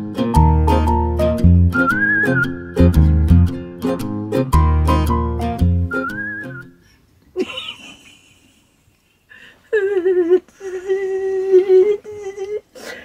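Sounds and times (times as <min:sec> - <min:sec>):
person humming: 0:09.7 - 0:12.7.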